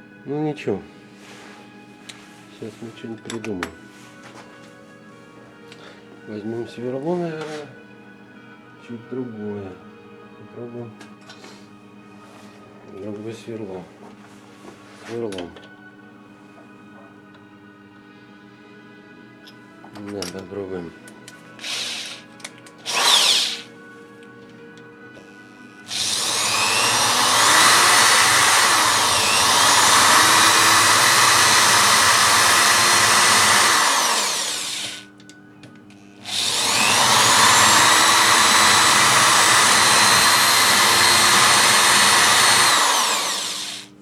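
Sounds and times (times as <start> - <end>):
electric drill cutting: 21.6 - 23.7, 25.2 - 35.1, 36.0 - 44.0.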